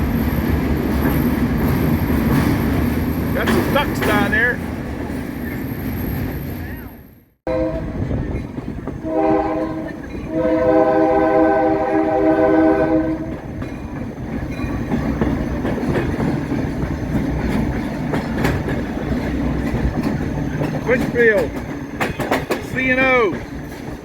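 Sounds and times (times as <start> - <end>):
train rumbling: 0.0 - 24.0
wheels clacking on rails: 0.0 - 24.0
locomotive air horn: 7.4 - 8.0, 9.0 - 13.3.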